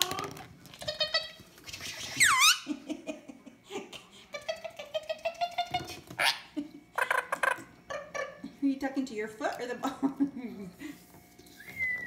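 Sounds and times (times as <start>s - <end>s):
parrot squawking and chattering: 0.7s - 2.7s, 4.7s - 8.4s.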